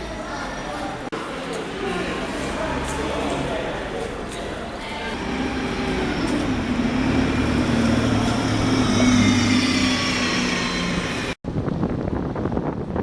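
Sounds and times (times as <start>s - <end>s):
train running with low hum: 5.2s - 11.4s
wind buffeting microphone: 11.4s - 13.0s.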